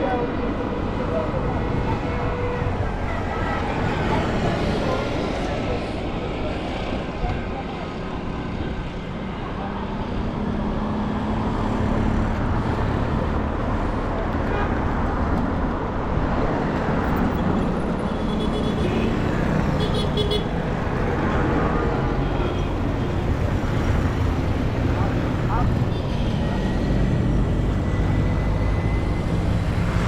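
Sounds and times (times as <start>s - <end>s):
traffic engines and road noise: 0.0s - 30.0s.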